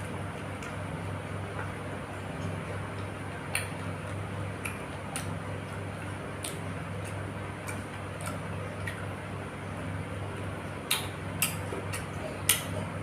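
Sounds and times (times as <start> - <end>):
steady low hum: 0.0 - 13.0
mouth clicks and smacks: 10.8 - 12.8.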